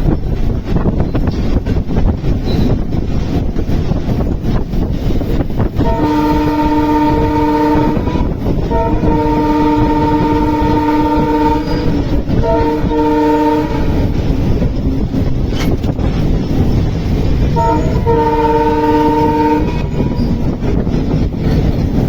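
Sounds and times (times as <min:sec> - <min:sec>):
running train rumble: 0:00.0 - 0:22.0
train horn blasts: 0:05.8 - 0:14.7, 0:17.5 - 0:21.6.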